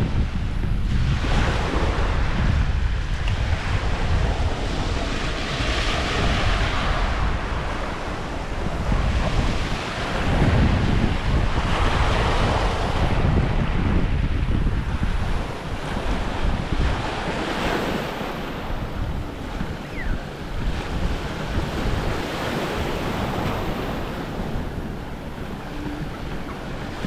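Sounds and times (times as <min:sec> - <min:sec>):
small waves washing onto sand: 0:00.0 - 0:27.0
wind buffeting microphone: 0:00.0 - 0:27.0.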